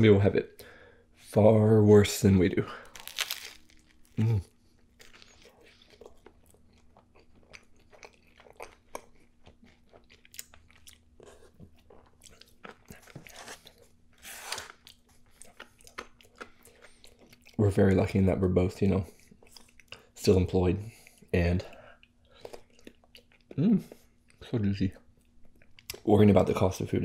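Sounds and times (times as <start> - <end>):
crunchy chewing: 2.8 - 17.6.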